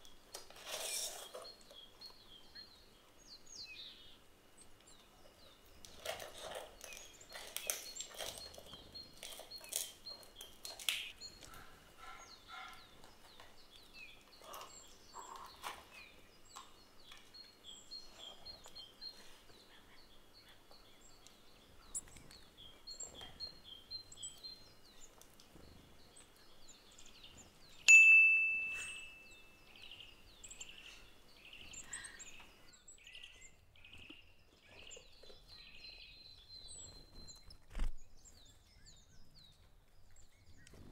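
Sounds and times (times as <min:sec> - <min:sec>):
small birds chirping: 0:00.0 - 0:40.9
metallic ding: 0:27.9 - 0:29.3.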